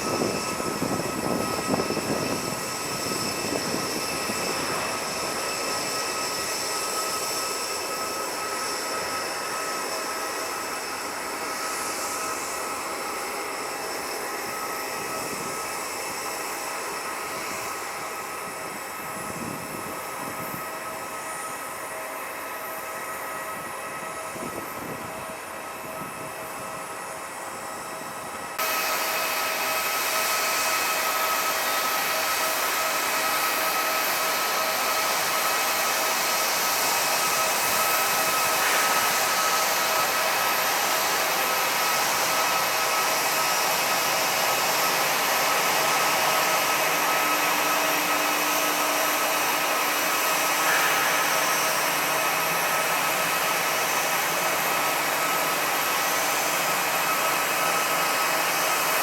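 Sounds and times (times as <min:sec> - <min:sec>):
high engine whine: 0:00.0 - 0:59.0
jet engine rushing hiss: 0:00.0 - 0:59.0.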